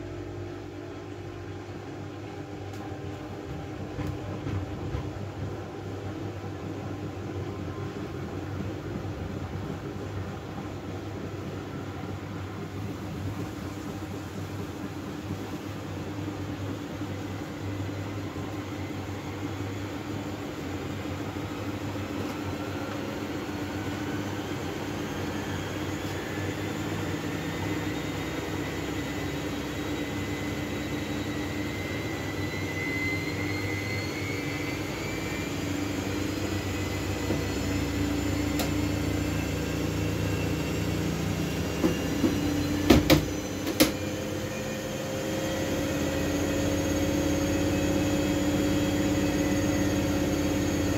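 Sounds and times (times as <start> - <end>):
washing machine motor whine: 0.0 - 50.9.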